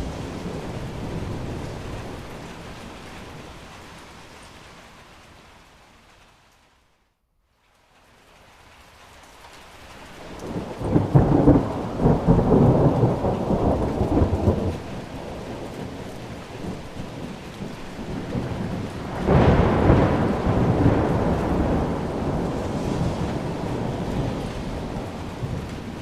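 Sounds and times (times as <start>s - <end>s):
thunder rumbling: 0.0s - 4.1s, 10.2s - 26.0s
steady rain: 0.0s - 26.0s.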